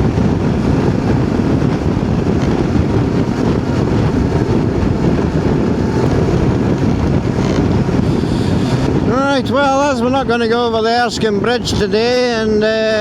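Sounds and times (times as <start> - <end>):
motorcycle engine: 0.0 - 9.9
road noise: 0.0 - 13.0
wind rush on helmet: 0.0 - 13.0.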